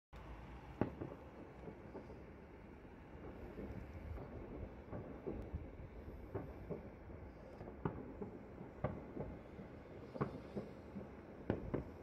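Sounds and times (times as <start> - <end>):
distant fireworks bangs: 0.8 - 12.0
steady low rumble: 1.2 - 9.9.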